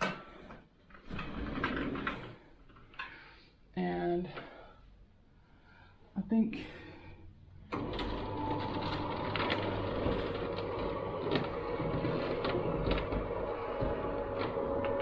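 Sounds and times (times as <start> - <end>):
roller shutter rattling: 7.8 - 15.0.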